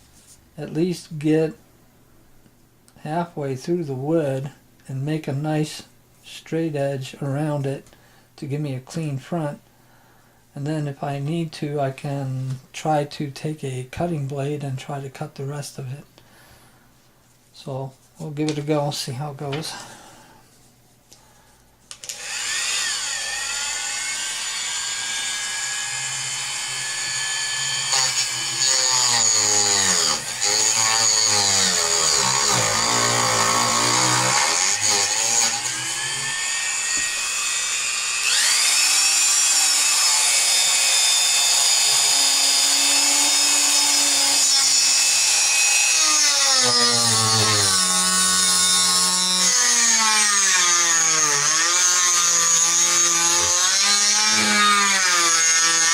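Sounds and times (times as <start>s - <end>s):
rotary tool cutting wood: 22.0s - 55.9s.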